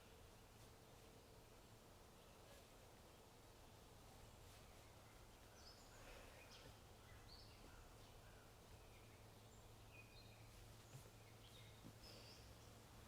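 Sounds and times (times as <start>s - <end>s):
faint bird chirps and whistles: 4.5s - 12.8s.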